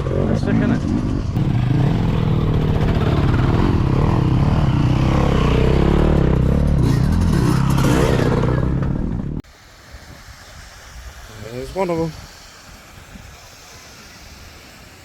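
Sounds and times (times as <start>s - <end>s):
motorcycle engines revving: 0.0s - 9.4s.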